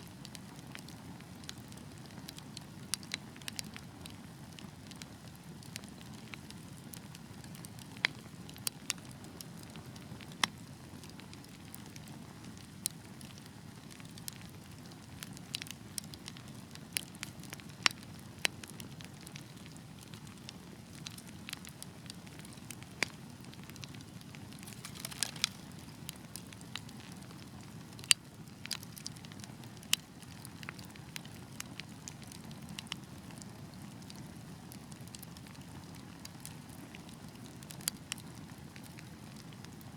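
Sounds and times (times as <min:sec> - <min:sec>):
wood fire rumble: 0:00.0 - 0:39.9
logs crackling and popping: 0:00.2 - 0:39.9.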